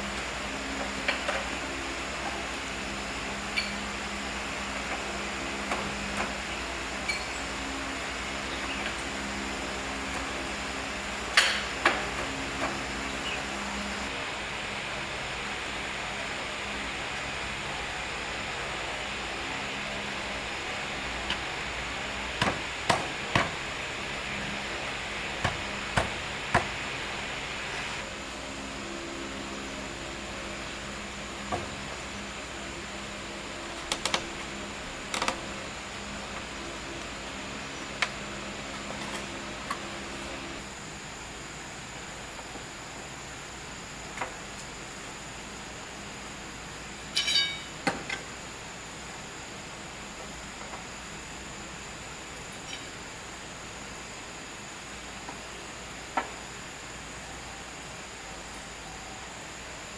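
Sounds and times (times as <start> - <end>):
steady hiss: 0.0 - 59.9
sharp knocks: 22.4 - 23.6, 25.4 - 26.8
sharp strikes on wood: 22.4 - 23.6, 25.4 - 26.8
short ringing clink: 47.2 - 47.7.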